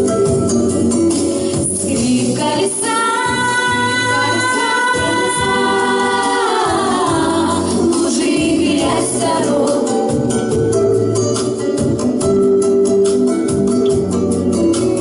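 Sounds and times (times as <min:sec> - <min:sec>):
instrumental backing: 0:00.0 - 0:15.0
person singing: 0:01.4 - 0:10.3.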